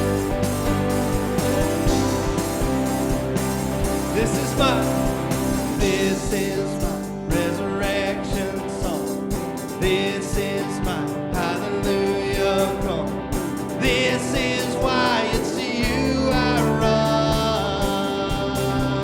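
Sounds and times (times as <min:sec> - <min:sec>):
worship band playing: 0:00.0 - 0:19.0
people singing: 0:04.0 - 0:13.2, 0:13.8 - 0:19.0.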